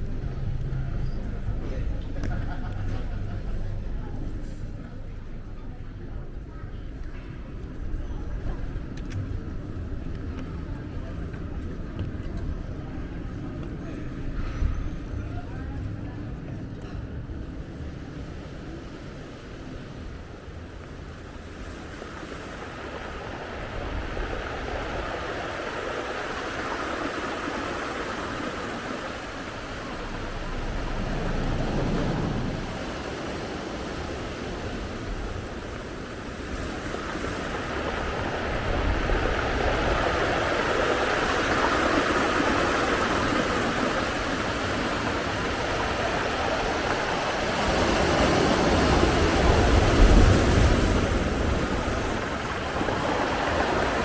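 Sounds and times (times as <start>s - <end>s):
rushing outdoor noise: 0.0s - 54.0s
low rumble: 29.2s - 33.4s.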